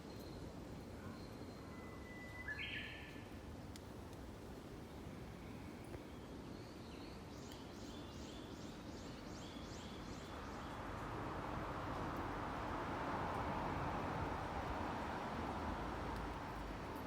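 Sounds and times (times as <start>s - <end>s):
low traffic rumble: 8.7s - 17.0s
passing vehicle: 10.5s - 17.0s.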